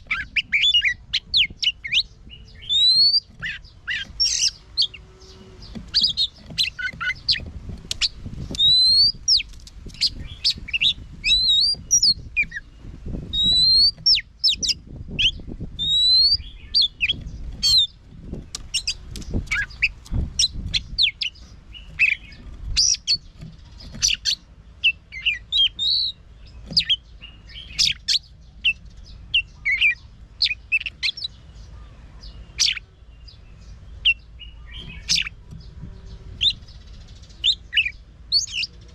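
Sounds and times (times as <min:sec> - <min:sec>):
bird singing: 0:00.0 - 0:38.9
low dull thuds: 0:01.3 - 0:15.8, 0:17.0 - 0:24.2.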